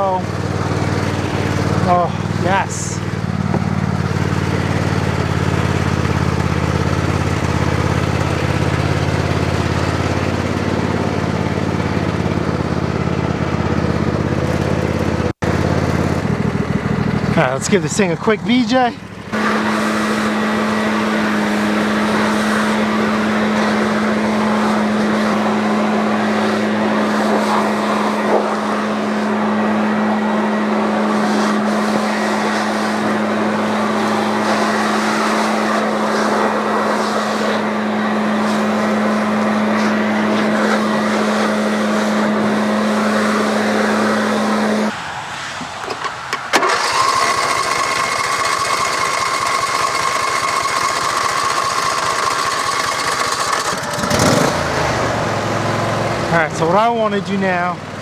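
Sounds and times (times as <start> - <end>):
machine running with higher whine: 0.0 - 45.0
small engine humming: 0.0 - 45.0, 45.8 - 58.0.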